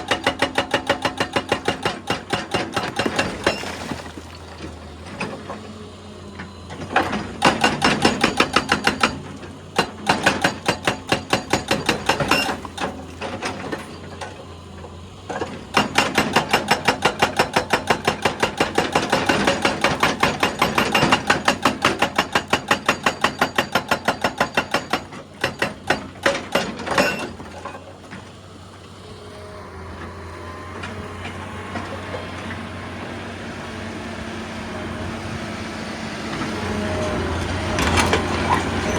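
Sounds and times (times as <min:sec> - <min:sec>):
hydraulic breaker hammering rock: 0:00.0 - 0:05.6, 0:06.8 - 0:14.4, 0:15.3 - 0:27.9
excavator engine running: 0:04.4 - 0:38.9.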